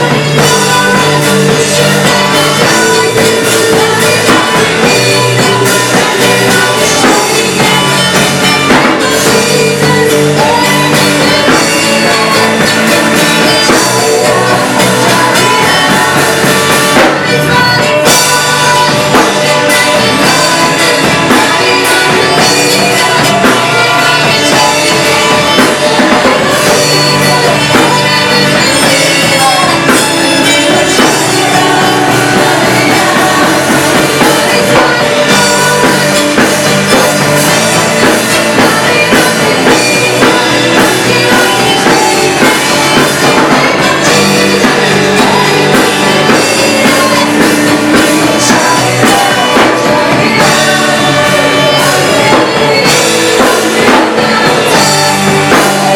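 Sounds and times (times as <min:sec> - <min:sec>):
rock band playing: 0:00.0 - 0:55.9
voices singing: 0:00.0 - 0:55.9.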